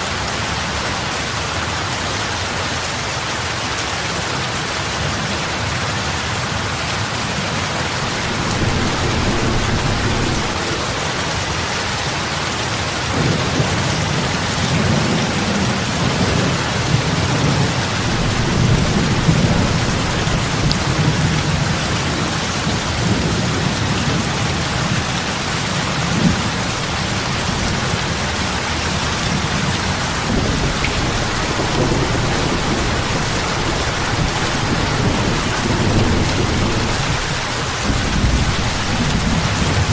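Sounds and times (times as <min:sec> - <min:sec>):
heavy rain on water: 0:00.0 - 0:39.9
low rumble: 0:07.9 - 0:12.0.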